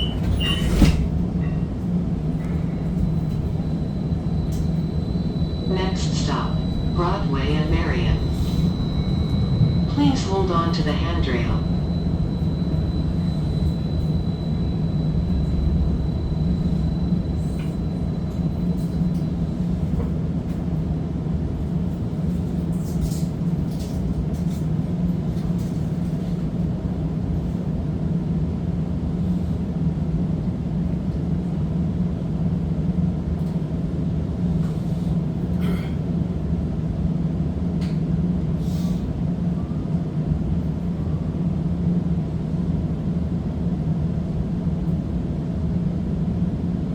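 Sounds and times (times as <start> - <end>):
streetcar running rumble and hum: 0.0 - 46.9
thin high whine: 2.3 - 20.7.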